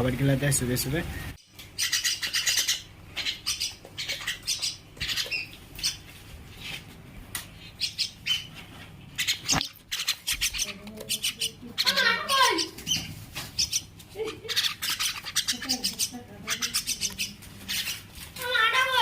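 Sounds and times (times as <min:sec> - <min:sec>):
mynas calling: 0:01.0 - 0:06.8, 0:07.5 - 0:19.0.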